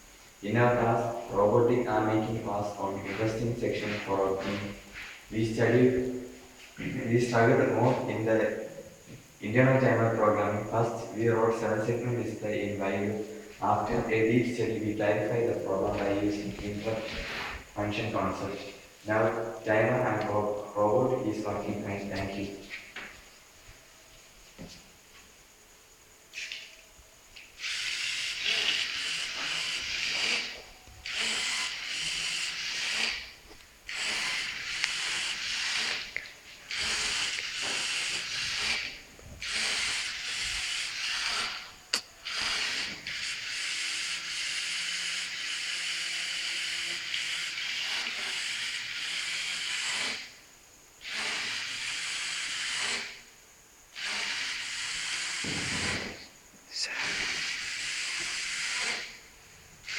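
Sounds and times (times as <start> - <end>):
robot drive motors whirring: 27.6 - 50.4, 51.0 - 53.2, 54.0 - 56.2, 56.9 - 59.2.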